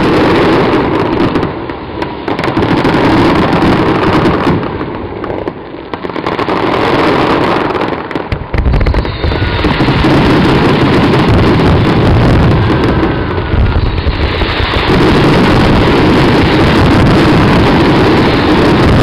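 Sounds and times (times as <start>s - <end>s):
fireworks bursting: 0.0s - 19.0s
fireworks crackle: 0.0s - 19.0s
low booms: 8.2s - 19.0s.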